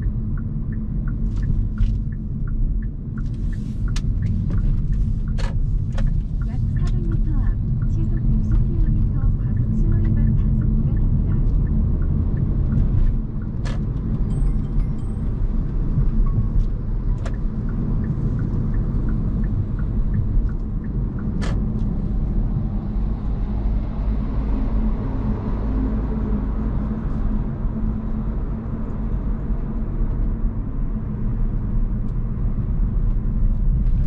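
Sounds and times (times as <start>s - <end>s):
road and tyre rumble: 0.0s - 34.0s.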